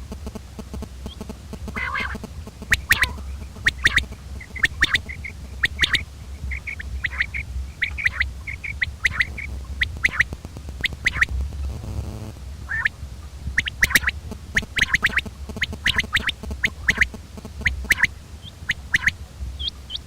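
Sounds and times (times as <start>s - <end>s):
quail calling: 1.1s - 11.4s, 12.7s - 20.0s.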